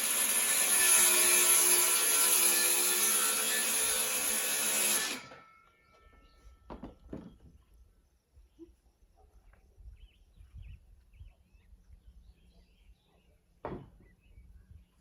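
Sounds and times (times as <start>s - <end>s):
power saw cutting wood: 0.0s - 5.4s.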